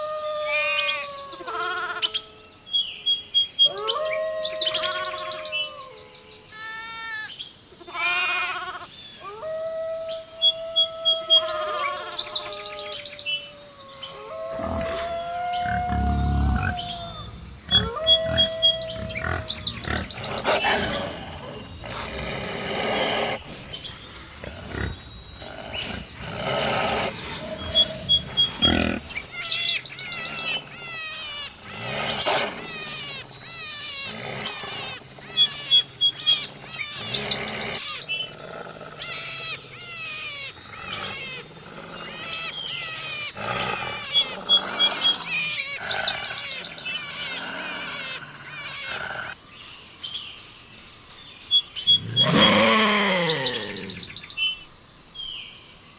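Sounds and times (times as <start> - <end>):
long held animal calls: 3.6 - 49.4, 51.8 - 54.6
low animal calls: 7.9 - 49.4, 51.8 - 54.3
high bird chirps: 14.6 - 22.2.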